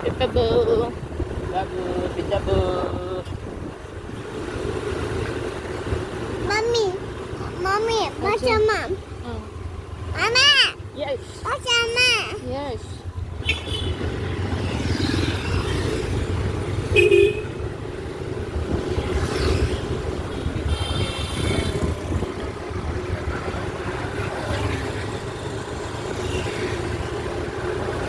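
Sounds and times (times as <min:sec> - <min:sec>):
vehicle engine rumble: 0:00.0 - 0:28.0.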